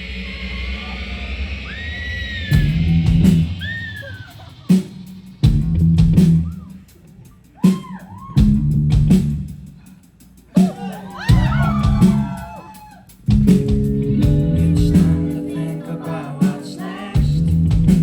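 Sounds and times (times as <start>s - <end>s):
live rock band playing: 10.5s - 18.0s
bending electric guitar notes: 13.6s - 18.0s.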